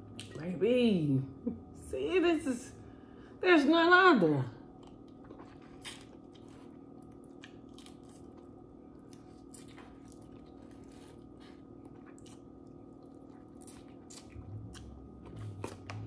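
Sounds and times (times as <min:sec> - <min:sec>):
wet chewing mouth sounds: 0:04.8 - 0:16.0.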